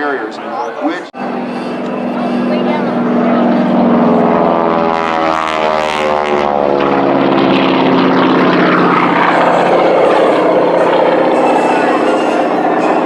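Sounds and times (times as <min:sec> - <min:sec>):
propeller plane engine drone: 0:00.0 - 0:13.0
harsh propeller rasp: 0:01.2 - 0:04.6, 0:08.5 - 0:13.0.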